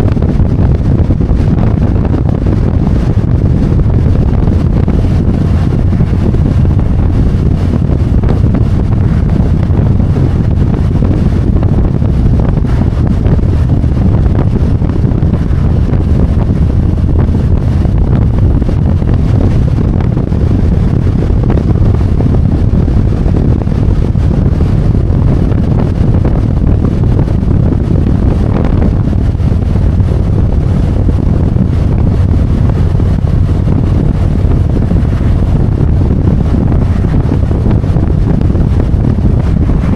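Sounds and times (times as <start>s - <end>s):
motorcycle engine and road rumble: 0.0s - 39.9s
wind rush on microphone: 0.0s - 39.9s.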